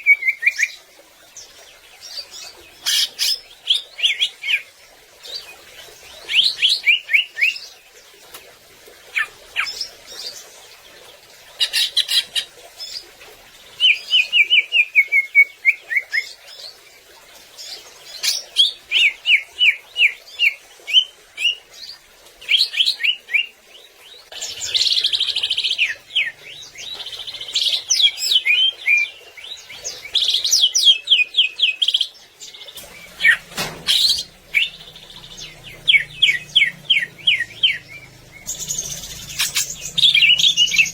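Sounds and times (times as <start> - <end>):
bird singing chirps and trills: 17.6 - 40.9.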